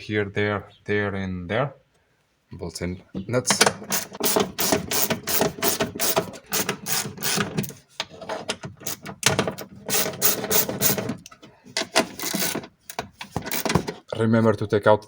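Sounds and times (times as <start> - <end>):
ratchet wrench clicking: 3.6 - 7.5.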